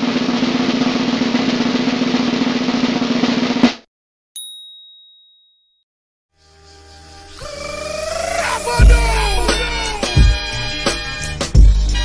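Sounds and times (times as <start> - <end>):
snare drum roll: 0.0 - 3.9
high ding ringing: 4.4 - 5.8.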